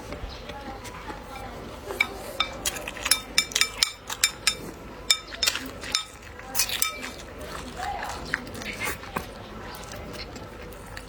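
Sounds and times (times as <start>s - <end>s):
utensils clinking on tableware: 1.2s - 7.7s.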